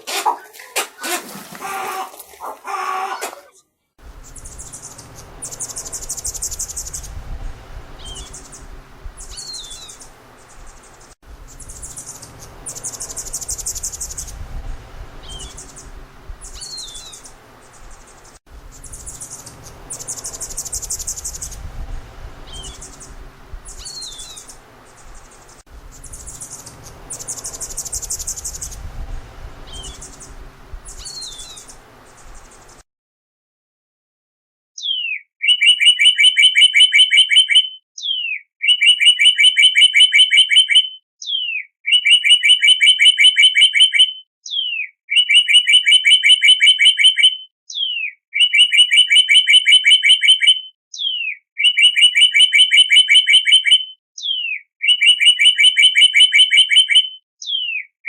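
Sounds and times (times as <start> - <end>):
low background rumble: 4.0 - 32.8
songbird trilling and chirping: 4.2 - 32.8, 34.8 - 57.9.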